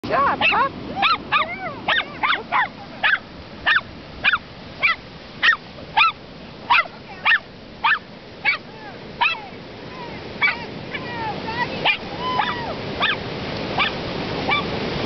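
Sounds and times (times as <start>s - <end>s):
faint hiss of surf: 0.1s - 15.0s
dog barking in high yips: 0.4s - 8.6s, 9.2s - 9.5s, 10.4s - 11.1s, 11.8s - 13.2s, 13.8s - 14.7s.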